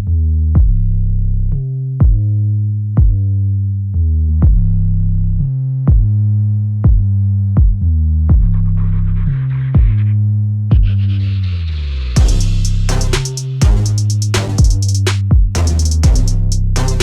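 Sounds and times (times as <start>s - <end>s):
drum-machine beat: 5.9s - 6.1s, 6.9s - 8.6s, 12.2s - 17.0s
synthesizer bass line: 7.8s - 17.0s.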